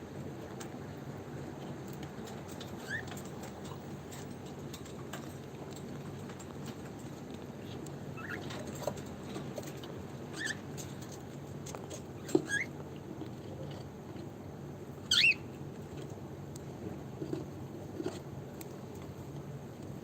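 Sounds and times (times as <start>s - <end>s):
clicks and taps from cage: 1.6s - 12.6s
cockatiels chirping: 2.8s - 3.1s, 8.2s - 8.5s, 10.4s - 10.6s, 12.4s - 12.7s, 15.1s - 15.5s.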